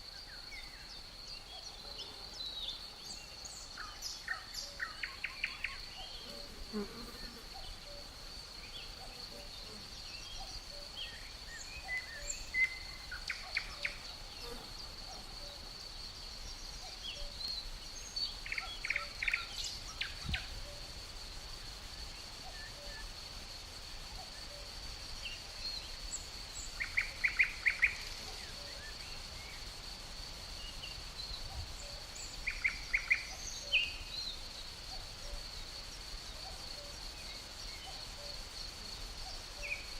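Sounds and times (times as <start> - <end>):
insect high-pitched drone: 0.0 - 39.9.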